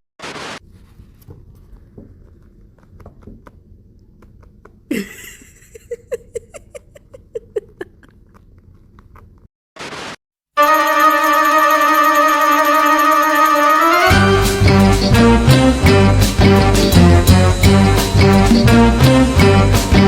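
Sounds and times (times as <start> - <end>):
cat chewing crisp bites: 0.9 - 4.9, 7.8 - 9.5.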